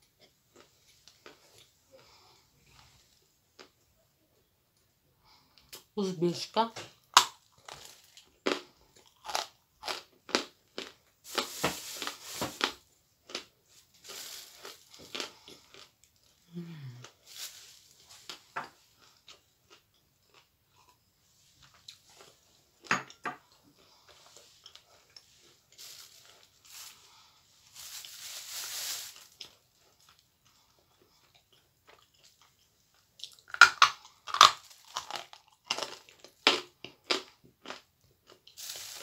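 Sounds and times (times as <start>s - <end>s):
crunching and chewing clay: 7.0s - 17.2s, 18.2s - 21.1s, 29.2s - 39.0s.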